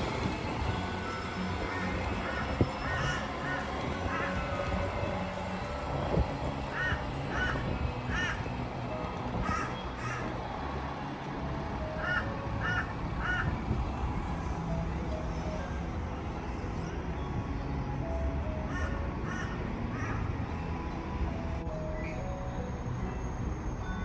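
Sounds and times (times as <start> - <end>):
crow cawing: 2.3 - 4.4.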